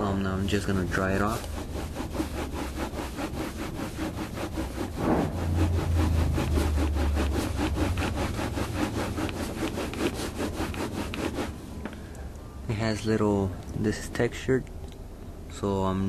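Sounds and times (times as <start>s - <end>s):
cloth rubbing textured siding: 0.0s - 11.8s
low rumble: 4.4s - 9.2s.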